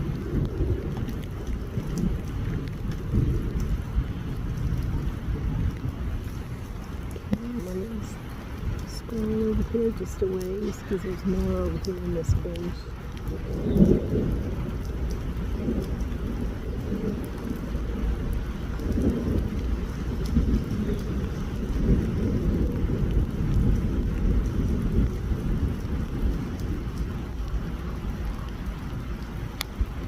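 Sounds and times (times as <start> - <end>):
rain falling: 0.0 - 30.0
wind buffeting microphone: 0.0 - 30.0.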